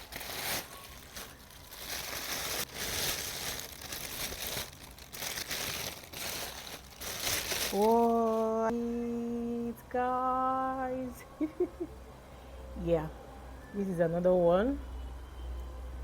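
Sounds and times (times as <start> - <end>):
packaging crinkling and tearing: 0.0 - 8.7
woman humming: 7.7 - 11.9.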